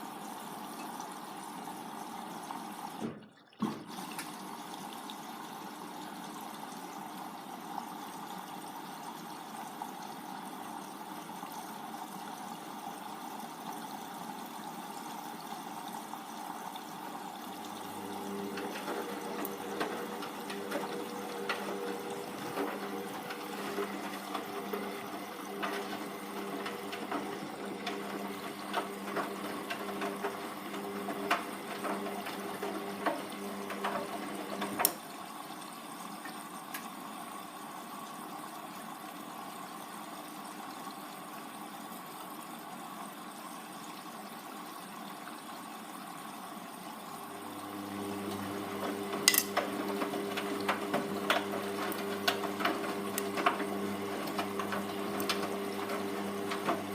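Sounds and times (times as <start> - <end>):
washing machine motor hum: 0.0 - 43.0, 46.7 - 56.9
wet laundry tumbling: 17.6 - 34.9, 47.8 - 56.9.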